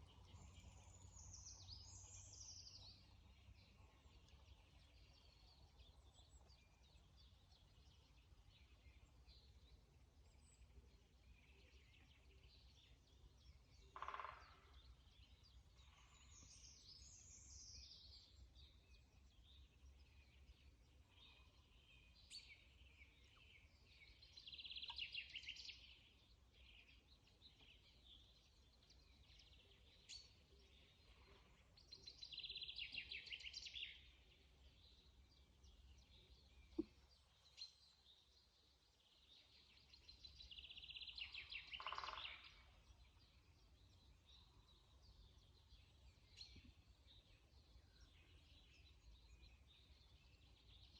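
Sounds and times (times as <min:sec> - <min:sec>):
faint bird chirps: 0:00.0 - 0:50.9
songbird trilling: 0:14.0 - 0:14.7, 0:40.6 - 0:42.8.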